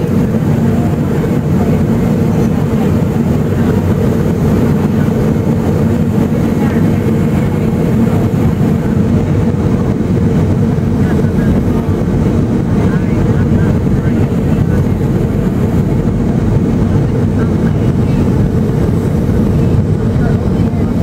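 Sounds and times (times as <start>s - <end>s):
airplane cabin engine drone: 0.0s - 21.0s.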